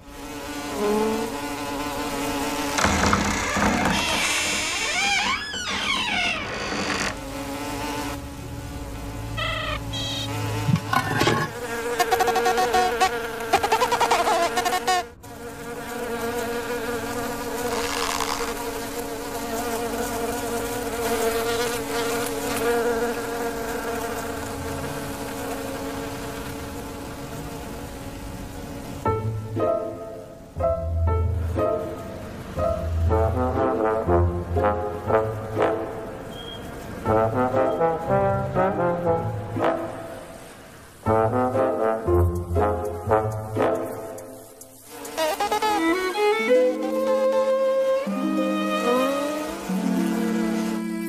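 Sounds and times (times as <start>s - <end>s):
cartoon insect wings buzzing: 0.0s - 5.6s, 6.3s - 28.5s, 40.4s - 51.0s.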